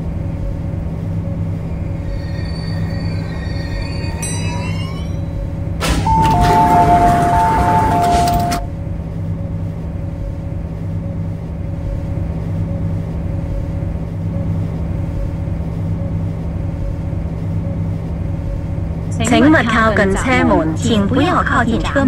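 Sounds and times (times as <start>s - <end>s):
rush of noise: 0.0s - 8.6s
train electrical hum: 0.0s - 22.0s
two-note electronic chime: 2.0s - 8.7s.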